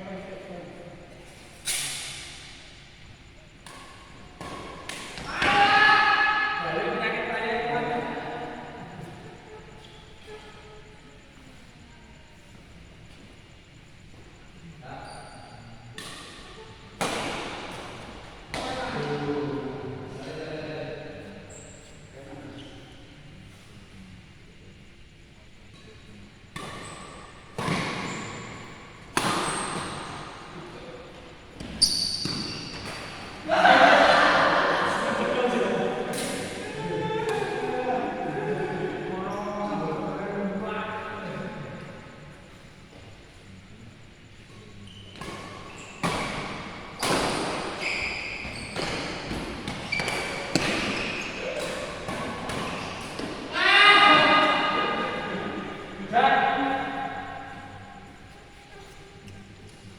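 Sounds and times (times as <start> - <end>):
rackets hitting shuttlecock: 3.6 - 5.6, 29.0 - 30.2, 31.6 - 33.5, 45.1 - 53.6
person shouting: 5.3 - 6.6, 53.5 - 54.8
shoes squeaking: 26.5 - 33.5, 44.6 - 55.0.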